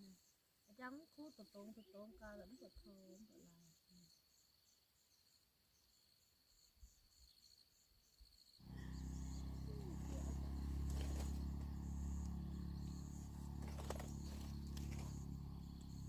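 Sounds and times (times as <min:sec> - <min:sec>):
insects chirping: 0:00.0 - 0:16.0
steady low rumble: 0:08.6 - 0:16.0.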